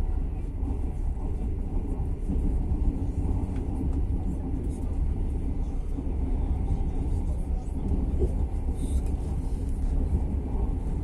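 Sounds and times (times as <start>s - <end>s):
passenger train rumbling: 0.0s - 11.0s.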